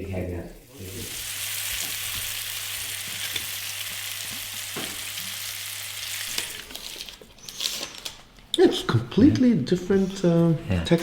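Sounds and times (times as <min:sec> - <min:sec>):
fish frying in oil: 0:00.7 - 0:07.2.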